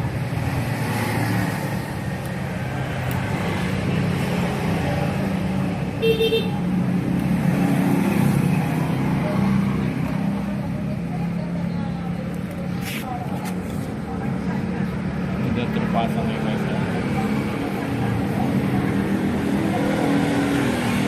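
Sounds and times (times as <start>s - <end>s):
car horn toot: 6.0s - 6.6s.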